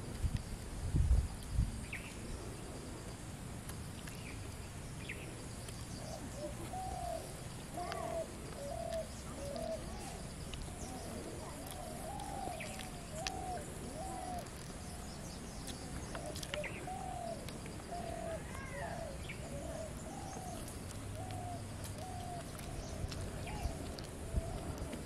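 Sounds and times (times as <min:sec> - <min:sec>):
faint bird chirps: 0:03.9 - 0:25.0
bird calling: 0:05.0 - 0:25.0.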